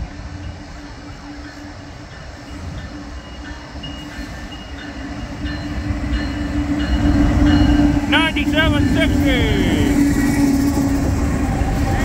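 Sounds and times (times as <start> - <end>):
diesel locomotive engines rumbling: 0.0 - 12.0.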